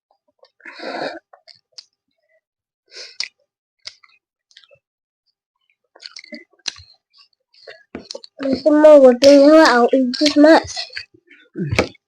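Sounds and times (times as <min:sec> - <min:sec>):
mouth chewing clicks and smacks: 0:03.1 - 0:04.8, 0:05.6 - 0:08.4.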